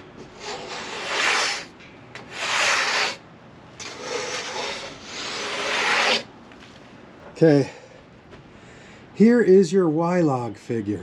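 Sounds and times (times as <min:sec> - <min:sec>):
broom sweeping sawdust: 0:00.4 - 0:01.7, 0:02.3 - 0:03.2, 0:04.0 - 0:06.3.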